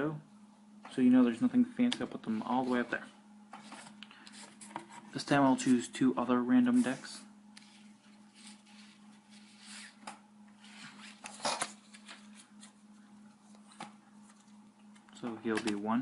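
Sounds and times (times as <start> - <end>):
playing cards sliding and tapping: 7.6 - 12.8.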